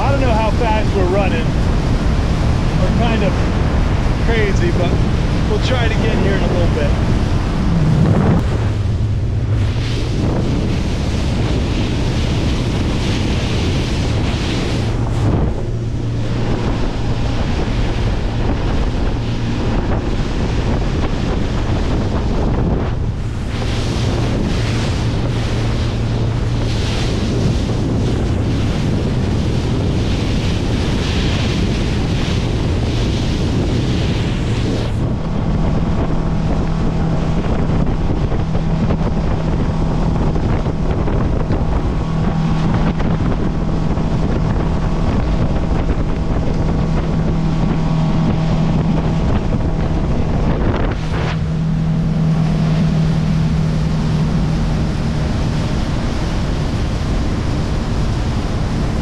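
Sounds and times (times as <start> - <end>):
outboard motor hum: 0.0 - 59.0
rushing water: 0.0 - 59.0
wind on microphone: 0.0 - 59.0.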